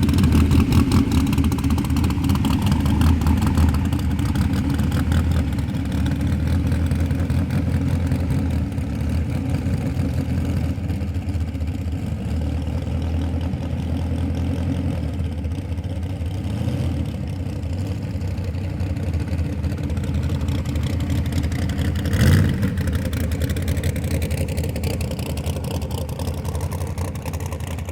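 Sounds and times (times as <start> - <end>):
car engine running: 0.0 - 27.9.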